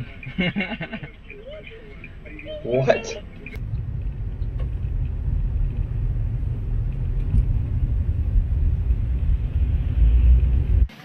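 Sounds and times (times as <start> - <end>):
car rumbling in motion: 0.0 - 11.0.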